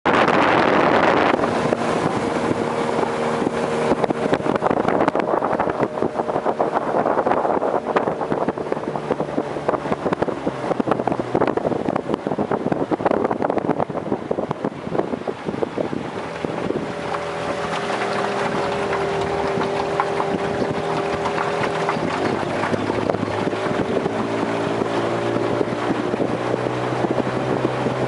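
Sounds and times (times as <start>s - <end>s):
motorboat engine running: 0.0s - 28.0s
wind noise on microphone: 0.0s - 28.0s
short irregular knocks: 16.1s - 25.1s.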